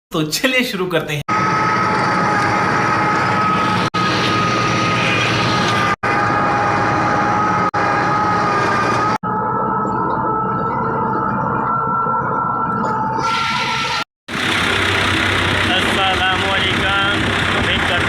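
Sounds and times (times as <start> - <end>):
tractor diesel engine running: 1.3 - 6.3, 14.3 - 18.0
steady high whine: 1.3 - 18.0.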